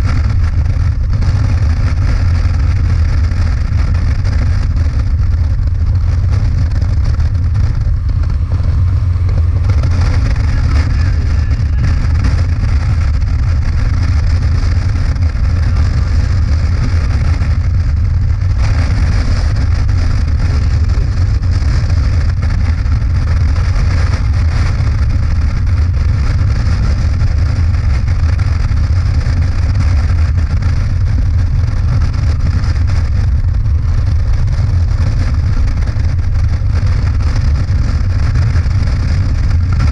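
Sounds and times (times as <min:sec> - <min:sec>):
motorcycle engine drone: 0:00.0 - 0:39.9
rushing wind and road noise: 0:00.0 - 0:39.9.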